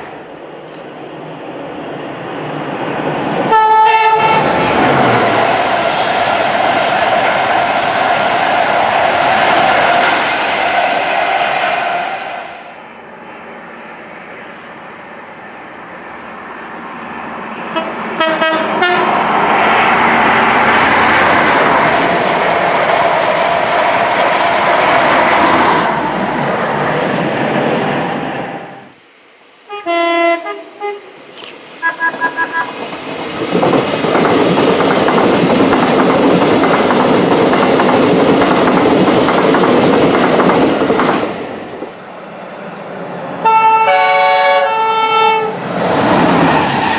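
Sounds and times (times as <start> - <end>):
trains rushing past: 0.0 - 29.7, 30.3 - 46.9
train horn blasts: 3.5 - 4.5, 17.8 - 19.1, 29.7 - 31.1, 43.4 - 45.6.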